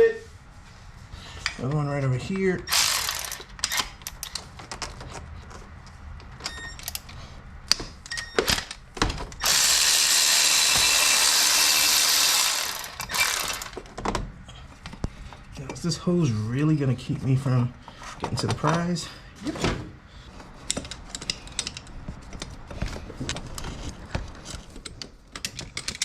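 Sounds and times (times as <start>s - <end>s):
hand ratchet clicking: 2.7s - 4.4s, 9.4s - 13.8s.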